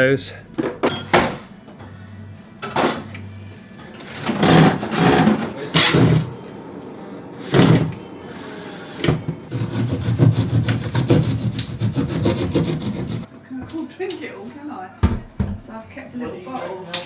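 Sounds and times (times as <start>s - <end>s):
knocks and scrapes: 3.9s - 6.3s
saw cutting plasterboard: 4.2s - 6.3s, 7.4s - 13.3s.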